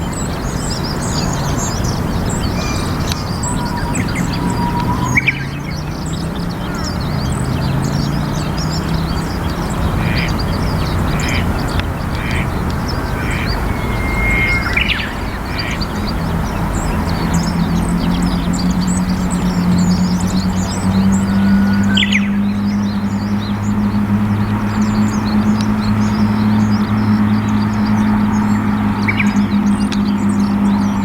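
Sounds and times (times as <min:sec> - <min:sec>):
small birds chirping: 0:00.0 - 0:31.0
steady low hum: 0:08.3 - 0:26.8
coot quack-like calls: 0:11.0 - 0:15.8.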